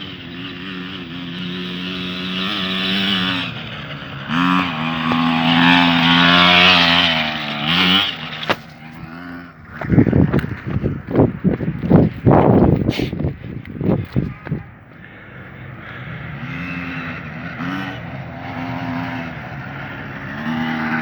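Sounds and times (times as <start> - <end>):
two-stroke dirt bike engine revving: 0.0 - 21.0.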